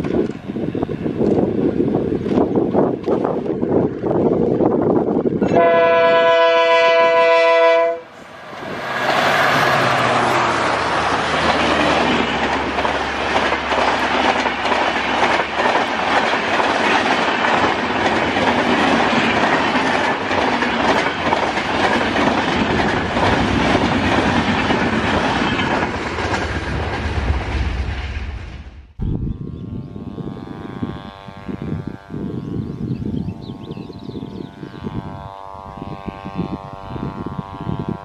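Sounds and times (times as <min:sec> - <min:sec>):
diesel locomotive engines droning: 0:00.0 - 0:27.9, 0:29.0 - 0:38.0
train wheels clattering over rail joints: 0:09.9 - 0:27.7.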